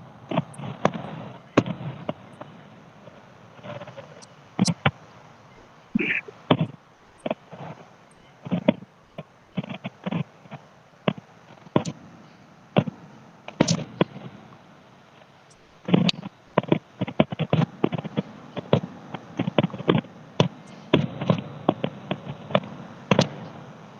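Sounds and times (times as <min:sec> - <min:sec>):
fireworks bangs and pops: 0:00.3 - 0:05.0, 0:15.9 - 0:23.6.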